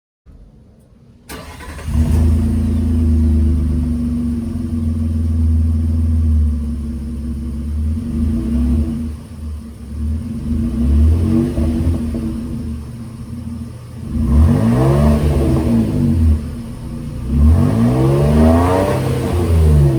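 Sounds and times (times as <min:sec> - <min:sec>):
engine starting and idling: 0:00.8 - 0:03.9
engine throttle blips: 0:01.3 - 0:19.9.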